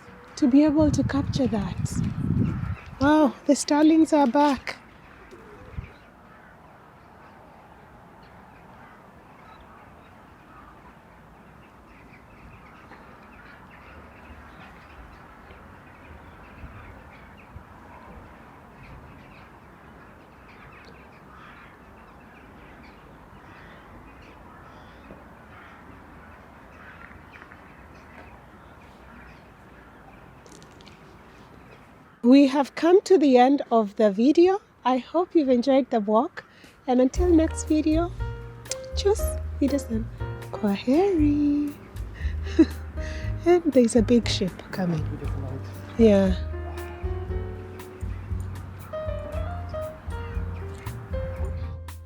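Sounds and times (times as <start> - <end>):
crows cawing: 4.6 - 7.4, 8.6 - 11.0, 20.5 - 30.6
starlings chattering: 36.2 - 51.5
low bump: 37.2 - 41.4, 42.0 - 52.0.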